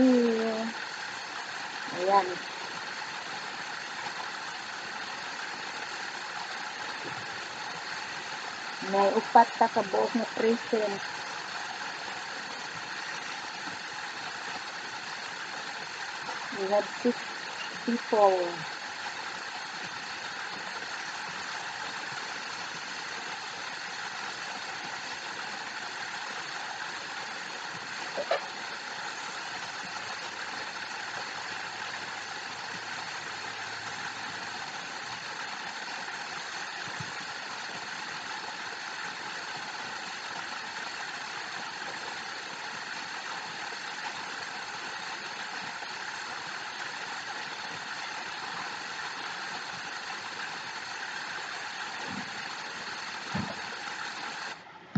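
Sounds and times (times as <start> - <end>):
waterfall rushing: 0.0 - 0.8, 21.5 - 35.4.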